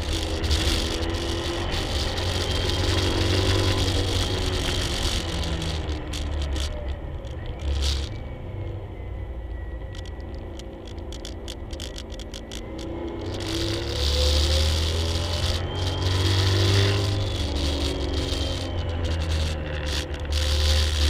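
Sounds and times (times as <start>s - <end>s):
sharp clicks and rattles: 0.0s - 8.2s, 9.8s - 21.0s.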